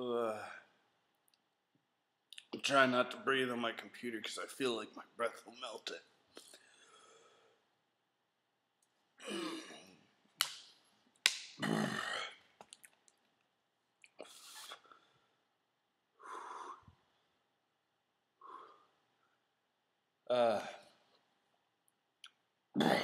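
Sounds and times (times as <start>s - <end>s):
man breathing hard: 16.2s - 17.0s.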